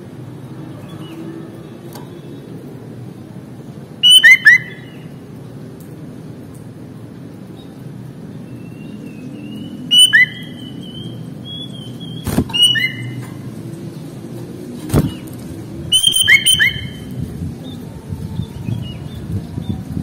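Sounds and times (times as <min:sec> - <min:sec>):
bird whistling song: 0:04.0 - 0:05.1, 0:08.5 - 0:13.2, 0:15.9 - 0:17.8.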